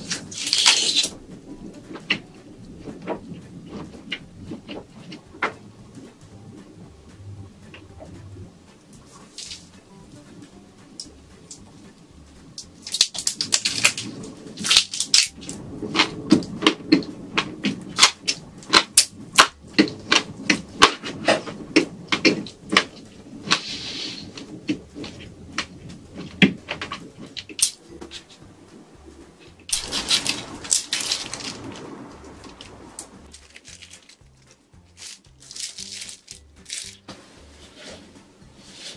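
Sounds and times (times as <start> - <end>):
crunching shrimp while eating: 0.0 - 1.3, 12.6 - 28.2, 29.7 - 37.1
rustling: 0.0 - 38.9.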